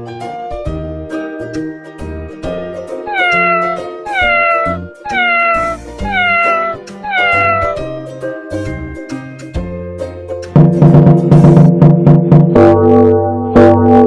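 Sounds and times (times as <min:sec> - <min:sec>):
cat meowing: 0:03.1 - 0:07.9.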